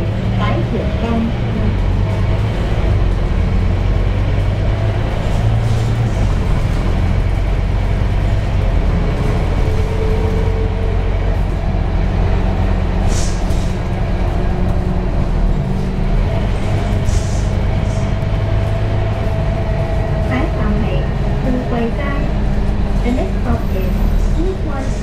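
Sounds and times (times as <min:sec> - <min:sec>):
bus diesel engine running: 0:00.0 - 0:25.0
short air hisses: 0:13.1 - 0:13.7.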